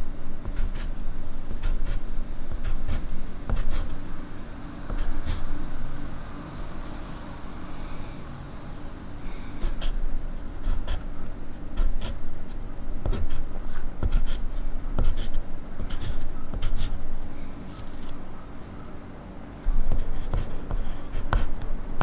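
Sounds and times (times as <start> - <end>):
pencil writing on paper: 0.5 - 0.9, 1.5 - 2.0, 2.6 - 4.0, 4.9 - 5.5, 9.6 - 11.0, 11.6 - 12.2, 13.0 - 17.2, 19.7 - 21.6.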